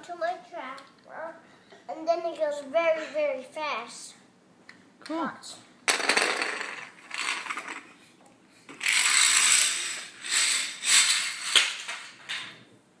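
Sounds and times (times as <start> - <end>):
toy trucks rolling and clattering: 5.9 - 7.9, 8.7 - 12.5.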